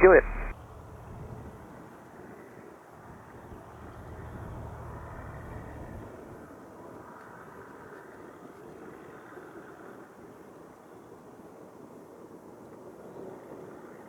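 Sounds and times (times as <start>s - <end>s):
airplane engine drone: 0.0s - 1.8s, 2.9s - 6.4s.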